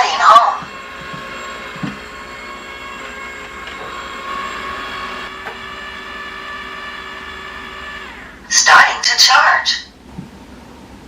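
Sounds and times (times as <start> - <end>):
robot vacuum motor whine: 0.0 - 8.6.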